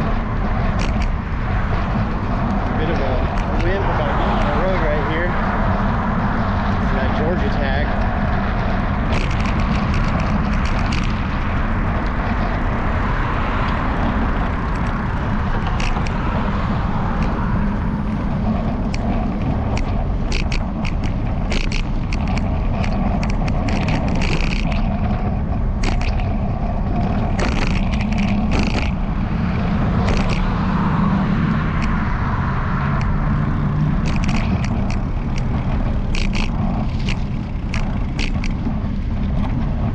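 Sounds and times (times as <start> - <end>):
low rumble of bicycle ride: 0.0 - 39.9
camera mount rattling: 0.6 - 4.5, 9.0 - 12.6, 13.7 - 17.6, 18.4 - 30.6, 32.9 - 39.7.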